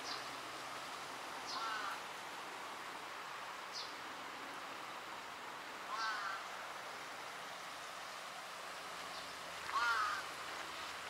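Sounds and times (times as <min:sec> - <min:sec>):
steady background noise: 0:00.0 - 0:11.0
birds calling harshly: 0:01.4 - 0:02.0, 0:05.9 - 0:06.6, 0:09.1 - 0:10.4.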